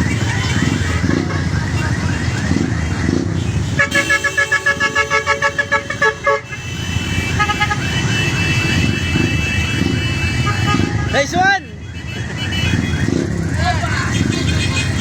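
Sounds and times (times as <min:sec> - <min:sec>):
motorcycle engines idling: 0:00.0 - 0:15.0
vehicle horn short beeps: 0:03.7 - 0:11.3.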